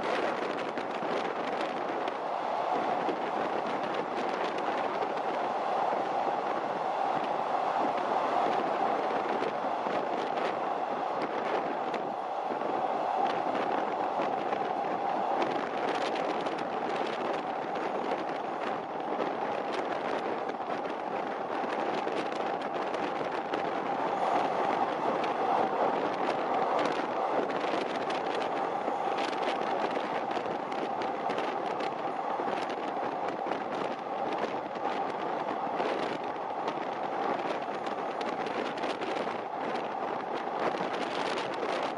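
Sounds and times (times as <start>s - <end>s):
train wheels rumbling on rail: 0.0s - 41.9s.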